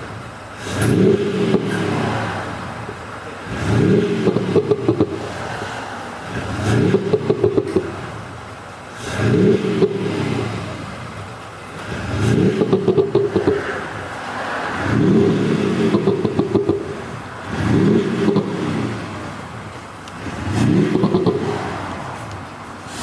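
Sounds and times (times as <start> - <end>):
car engine revving: 0.0 - 23.0
exhaust pops and bangs: 0.6 - 5.4, 6.5 - 8.4, 9.2 - 14.2, 14.8 - 22.6.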